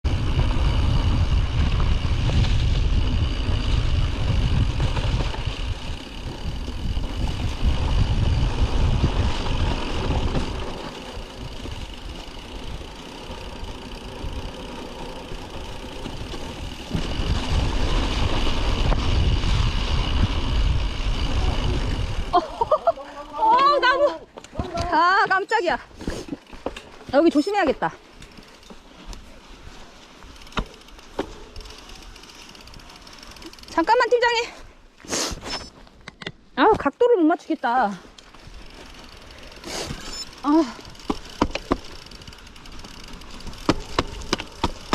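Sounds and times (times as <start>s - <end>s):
wind buffeting microphone: 0.0s - 12.9s, 15.4s - 22.8s
mountain bike riding noise: 0.0s - 44.9s.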